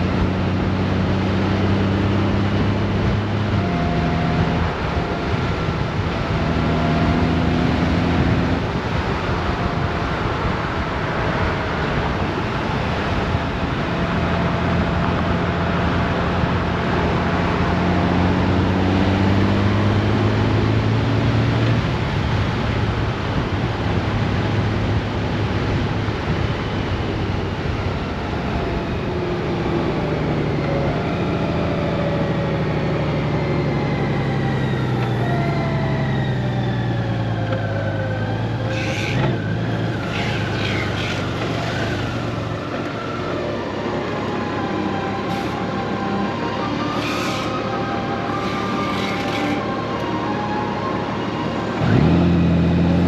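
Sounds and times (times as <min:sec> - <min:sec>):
heavy wind rush: 0:00.0 - 0:18.9, 0:21.1 - 0:32.0.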